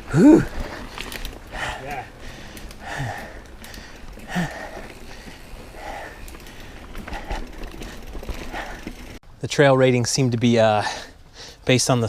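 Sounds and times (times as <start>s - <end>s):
person breathing hard: 0.1s - 9.2s.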